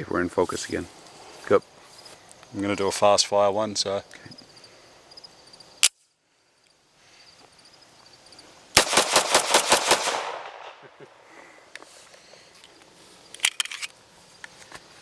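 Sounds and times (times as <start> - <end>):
rapid gunshots: 8.8 - 10.8.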